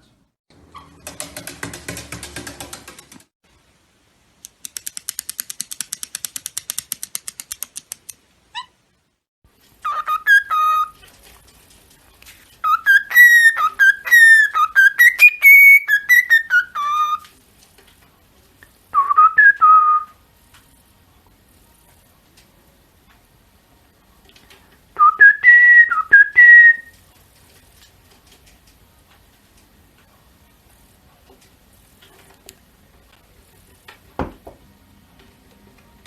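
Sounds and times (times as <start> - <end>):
rapid clicks: 1.0 - 3.3, 4.4 - 8.2
parrot whistling a tune: 9.8 - 11.0, 12.6 - 17.3, 18.9 - 20.2, 25.0 - 26.9.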